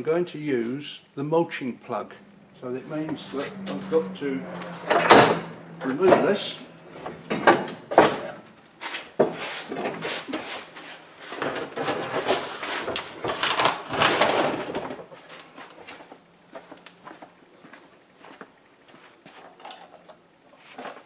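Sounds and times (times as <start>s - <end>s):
clunks and rattles of metal bin: 4.6s - 8.6s, 11.3s - 15.5s.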